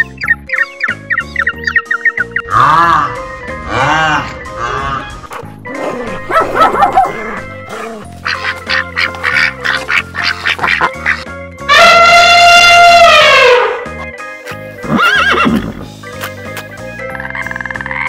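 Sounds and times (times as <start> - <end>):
background music: 0.0 - 18.0
animal calls: 6.0 - 11.2
duck quacks: 7.7 - 11.2.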